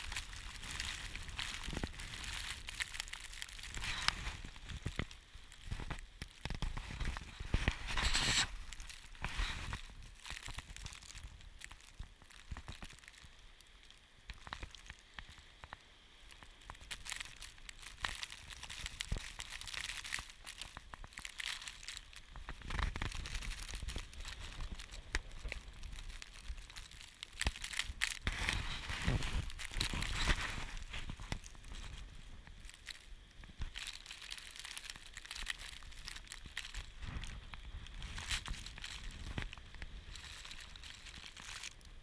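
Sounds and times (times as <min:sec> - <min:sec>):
blizzard wind buffeting microphone: 0:00.0 - 0:11.6, 0:22.1 - 0:33.8, 0:35.0 - 0:42.0
crackling: 0:00.0 - 0:42.0.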